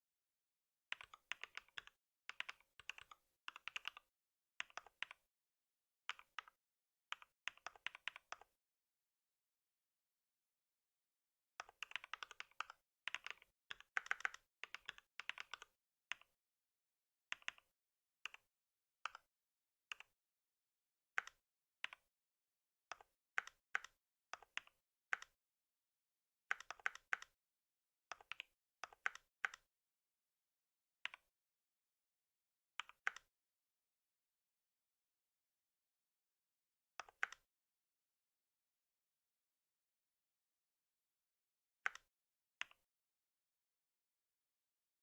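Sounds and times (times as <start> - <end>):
computer keyboard typing: 0.9 - 4.0, 11.6 - 16.3, 26.5 - 27.3.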